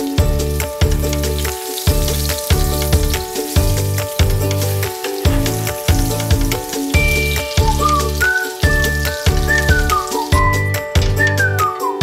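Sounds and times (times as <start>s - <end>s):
chicken sizzling in frying pan: 0.0s - 11.4s
background music with beat: 0.0s - 12.0s
spatula turning food: 1.2s - 10.4s.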